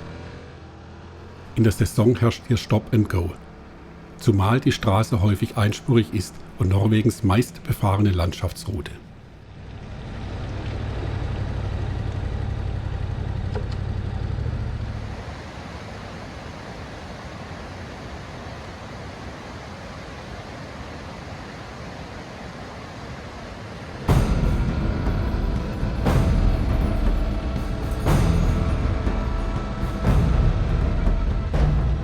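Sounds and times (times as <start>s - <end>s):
vehicle engine rumble: 0.0s - 19.4s, 22.6s - 32.0s
road and wind noise: 0.0s - 32.0s
loud music: 24.1s - 32.0s.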